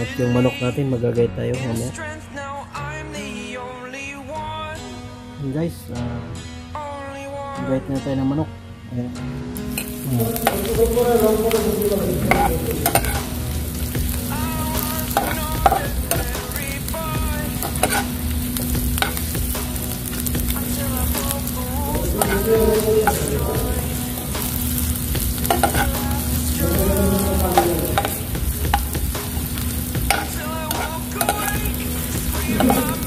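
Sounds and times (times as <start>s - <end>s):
vegetables sizzling in oil: 9.6s - 33.0s
metal spatula scraping a pan: 12.2s - 21.0s, 22.1s - 23.4s, 24.3s - 26.6s, 27.5s - 33.0s.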